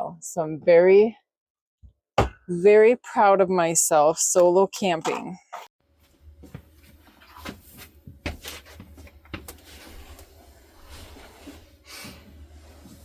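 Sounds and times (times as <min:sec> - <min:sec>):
steady low hum: 0:05.9 - 0:13.0.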